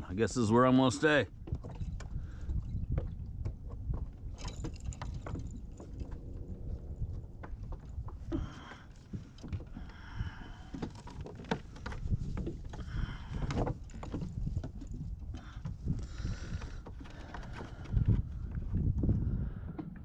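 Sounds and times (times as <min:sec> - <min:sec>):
steady low rumble: 0:02.2 - 0:10.7.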